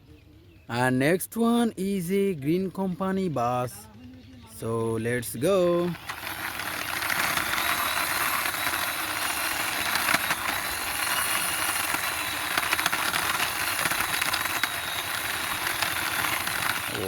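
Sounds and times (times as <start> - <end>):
toy wheels rolling rattle: 4.6 - 17.0
small clicks: 5.9 - 17.0.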